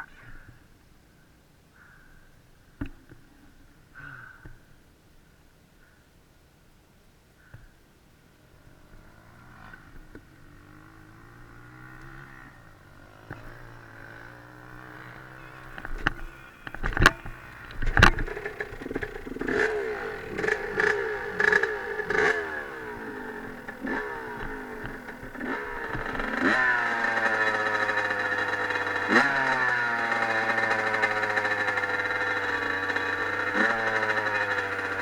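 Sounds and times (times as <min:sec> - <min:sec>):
dirt bike engine revving: 0:08.4 - 0:35.0
sharp loud clunks: 0:15.6 - 0:22.2.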